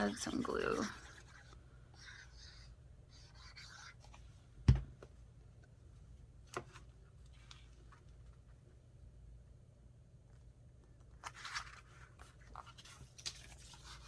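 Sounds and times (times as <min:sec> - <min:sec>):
paper rustling: 0:11.1 - 0:14.0.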